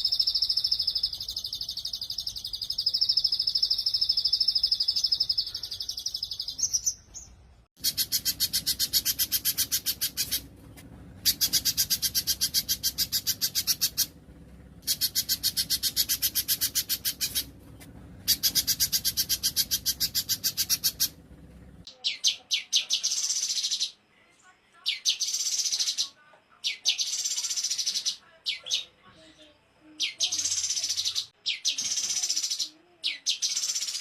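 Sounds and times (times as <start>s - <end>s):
songbirds trilling: 0.0s - 24.0s
buzzing high bird trill: 11.2s - 14.2s, 14.8s - 17.6s, 18.2s - 21.2s.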